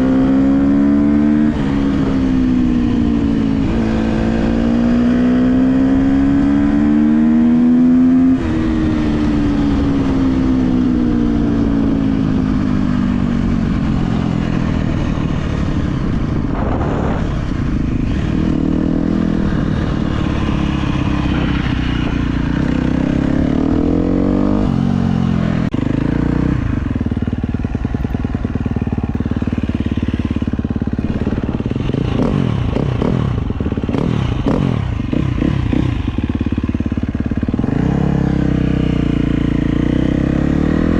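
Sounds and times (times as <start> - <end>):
dirt bike engine revving: 0.0 - 10.2, 13.6 - 27.0, 27.9 - 40.9.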